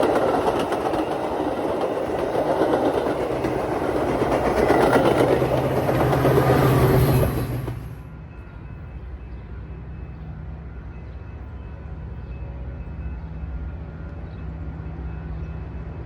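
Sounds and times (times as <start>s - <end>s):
train wheel and rail noise: 0.0s - 16.0s.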